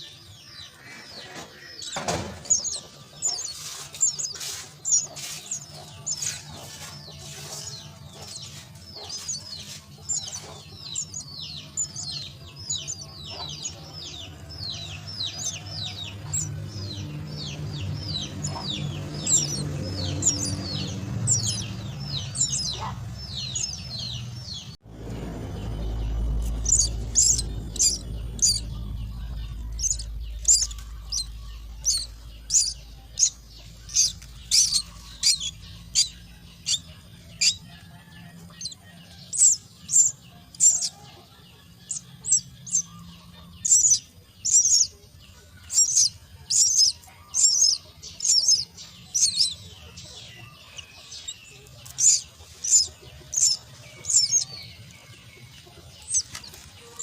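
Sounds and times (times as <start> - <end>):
bird chicks begging calls: 0.0 - 57.0
low rumble: 9.2 - 41.3.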